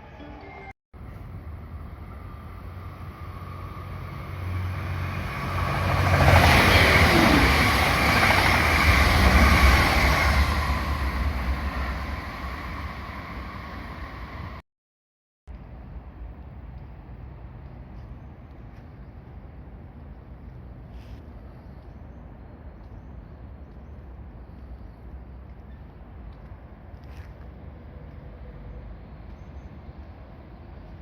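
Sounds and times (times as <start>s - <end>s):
electric train passing: 0.0s - 14.6s.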